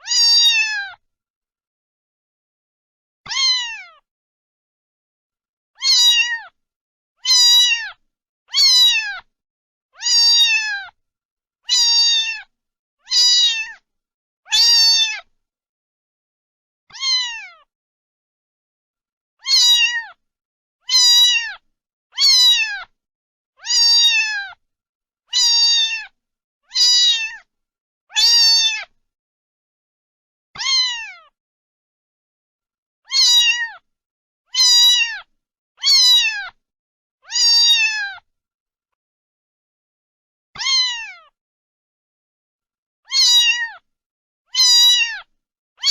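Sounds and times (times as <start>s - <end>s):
cat meowing: 0.0s - 1.0s, 3.3s - 4.0s, 5.8s - 6.6s, 7.2s - 9.3s, 10.0s - 11.0s, 11.7s - 13.8s, 14.5s - 15.3s, 16.9s - 17.7s, 19.4s - 20.2s, 20.9s - 21.6s, 22.2s - 22.9s, 23.6s - 24.6s, 25.3s - 27.5s, 28.1s - 28.9s, 30.6s - 31.4s, 33.1s - 33.8s, 34.5s - 36.6s, 37.2s - 38.2s, 40.6s - 41.4s, 43.1s - 43.8s, 44.5s - 45.9s.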